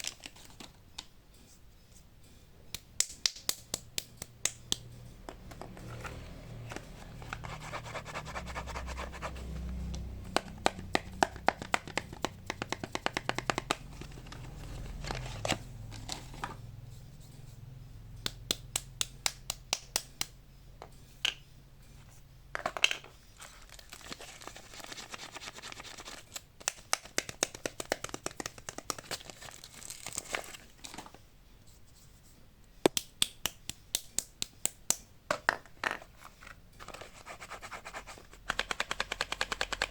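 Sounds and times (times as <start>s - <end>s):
quick sharp clicks and taps: 10.3s - 13.9s, 38.4s - 39.9s
packaging crinkling and tearing: 23.4s - 26.5s, 28.7s - 31.1s.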